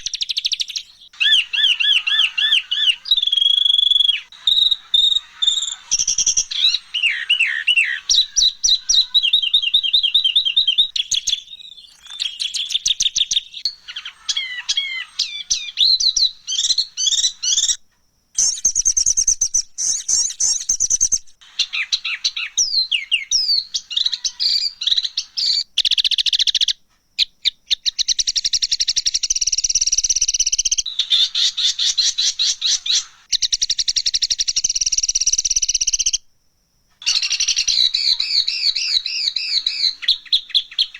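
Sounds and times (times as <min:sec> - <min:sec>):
songbird rattling trills and chirps: 0:00.0 - 0:17.8, 0:37.0 - 0:40.9.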